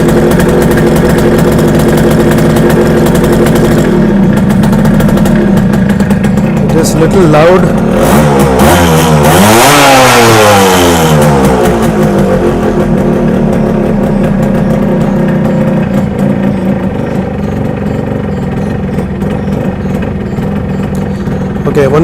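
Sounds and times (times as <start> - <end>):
two-stroke engine idling: 0.0 - 22.0.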